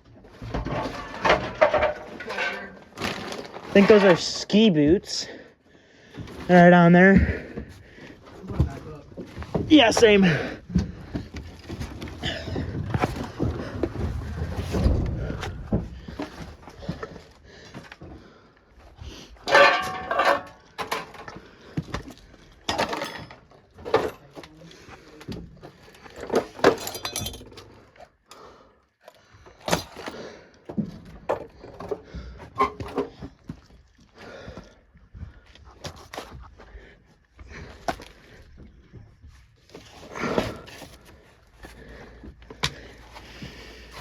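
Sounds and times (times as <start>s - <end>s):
debris knocking and rattling: 0.0s - 5.0s, 19.4s - 24.5s, 25.3s - 27.8s.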